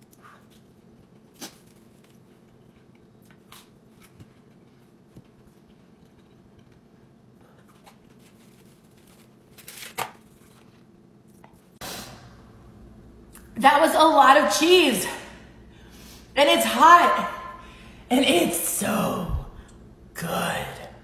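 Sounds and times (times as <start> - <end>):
steady low hum: 10.8 - 21.0.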